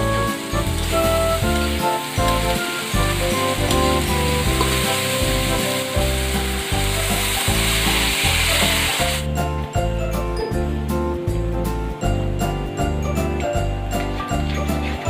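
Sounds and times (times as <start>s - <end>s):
food sizzling in hot oil: 0.0s - 9.3s
background music with steady beat: 0.0s - 15.0s.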